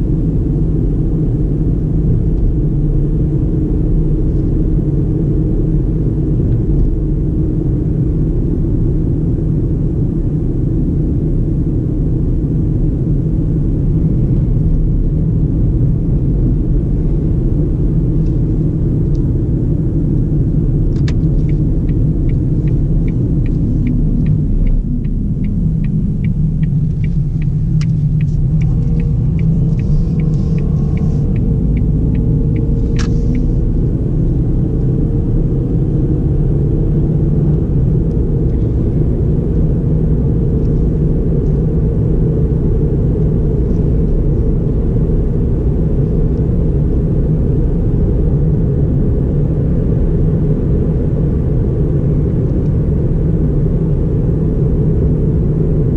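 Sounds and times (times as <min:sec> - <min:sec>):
car engine and road noise: 0:00.0 - 0:55.9
turn signal ticking: 0:20.9 - 0:34.2
sharp click: 0:23.1 - 0:33.5.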